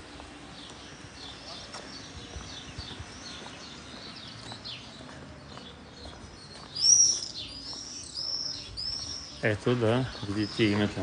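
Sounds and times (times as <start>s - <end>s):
small birds chirping and twittering: 0.0s - 11.0s.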